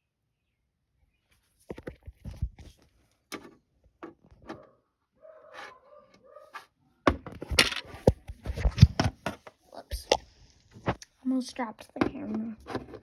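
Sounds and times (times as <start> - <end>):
camera handling knocks and rustling: 1.7 - 4.6, 7.1 - 9.6.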